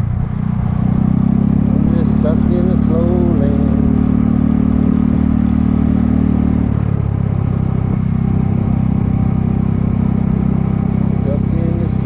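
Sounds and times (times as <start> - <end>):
scooter engine running: 0.0 - 12.0.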